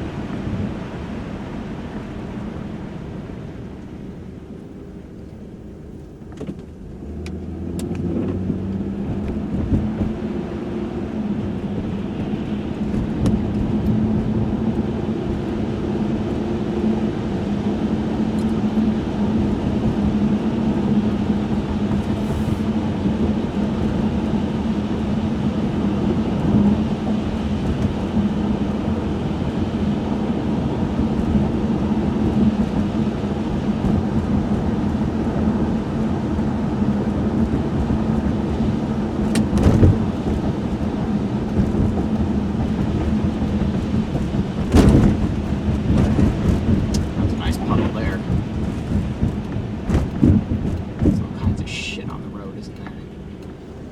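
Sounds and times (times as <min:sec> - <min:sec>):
car engine drone: 0:00.0 - 0:53.9
tyre and road noise: 0:00.0 - 0:53.9.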